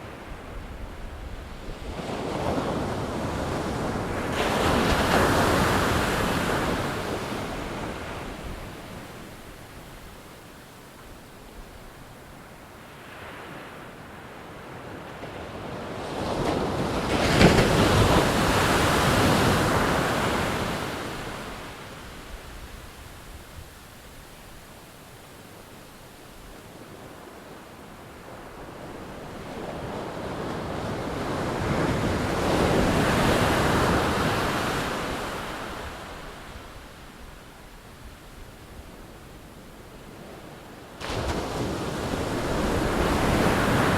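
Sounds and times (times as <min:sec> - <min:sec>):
low steady surf hiss: 0:03.8 - 0:15.2, 0:18.2 - 0:30.3, 0:32.2 - 0:43.9
ocean waves breaking: 0:41.0 - 0:43.9.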